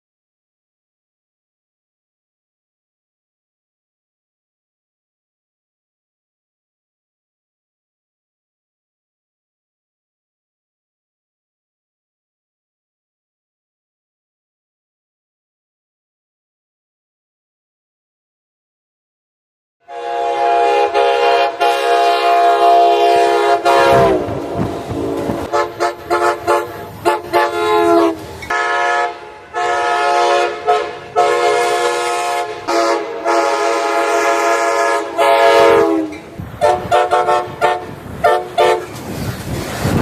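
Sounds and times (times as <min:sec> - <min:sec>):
locomotive horn blasts: 0:19.8 - 0:39.1.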